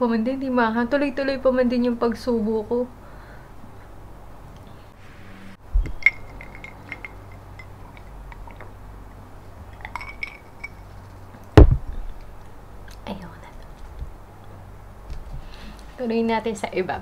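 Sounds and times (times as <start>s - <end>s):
utensils and glass clinking: 5.9s - 8.8s, 9.7s - 11.2s
loud thump of object set down: 11.6s - 12.0s.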